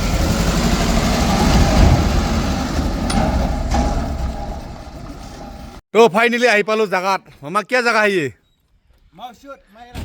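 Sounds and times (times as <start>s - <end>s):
truck engine rumbling: 0.0s - 5.8s
rattling knocks: 1.3s - 5.8s.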